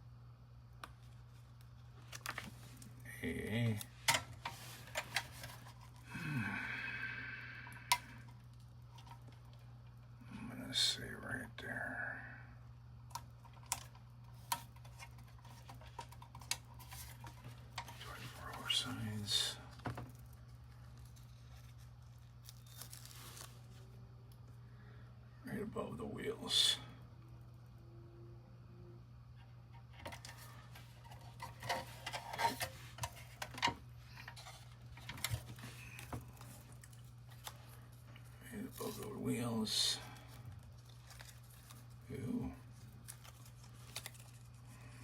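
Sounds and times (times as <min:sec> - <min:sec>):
steady low hum: 0:00.0 - 0:45.0
paper crinkling: 0:01.0 - 0:06.1, 0:13.3 - 0:23.9, 0:30.0 - 0:45.0.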